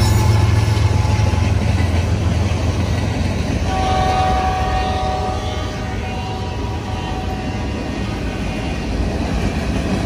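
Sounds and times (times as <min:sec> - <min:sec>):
train rumbling past: 0:00.0 - 0:10.0
locomotive horn chord: 0:03.6 - 0:07.9.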